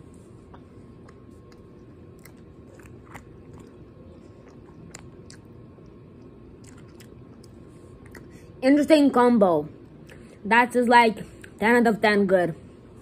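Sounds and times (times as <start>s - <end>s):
steady low hum: 0.0s - 13.0s
chewing gummy candy: 0.5s - 8.4s
wet mouth clicks and smacks: 4.4s - 8.3s.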